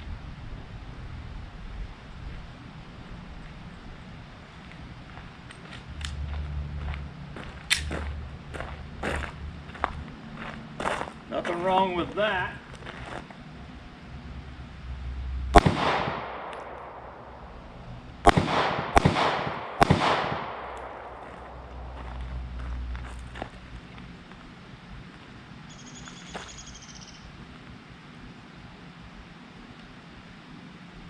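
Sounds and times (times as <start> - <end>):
wind noise on microphone: 0.0 - 10.2
pistol shots with echo: 15.5 - 22.0.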